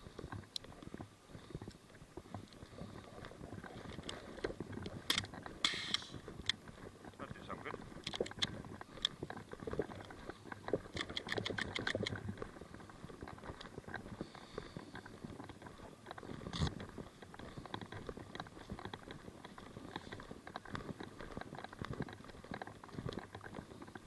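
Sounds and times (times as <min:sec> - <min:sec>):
footsteps: 0:00.0 - 0:24.0
sharp clicks: 0:04.8 - 0:06.6, 0:08.0 - 0:09.2, 0:10.6 - 0:12.3.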